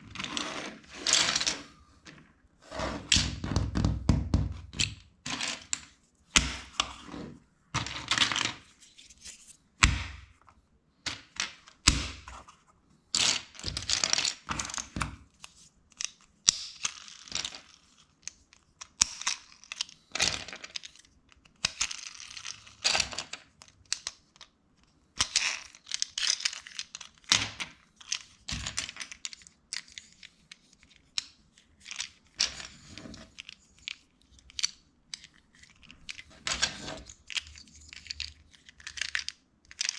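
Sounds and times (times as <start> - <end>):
plastic bricks clicking: 25.2 - 39.9.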